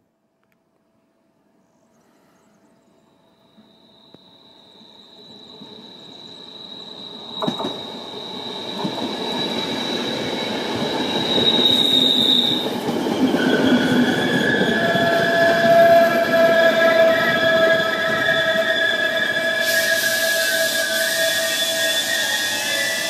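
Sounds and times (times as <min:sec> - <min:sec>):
high-pitched squealing tones: 0:03.3 - 0:23.0
train wheels rumbling on rails: 0:03.5 - 0:23.0
hiss: 0:19.5 - 0:23.0.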